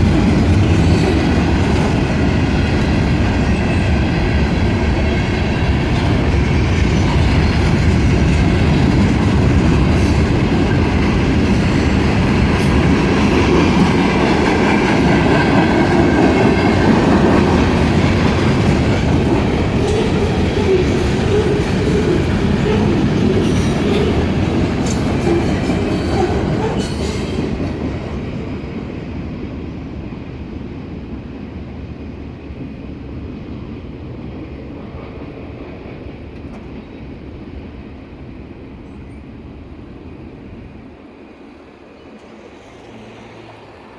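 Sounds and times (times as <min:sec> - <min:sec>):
train wheels clicking: 0:00.0 - 0:28.5
freight train rolling past: 0:00.0 - 0:43.9.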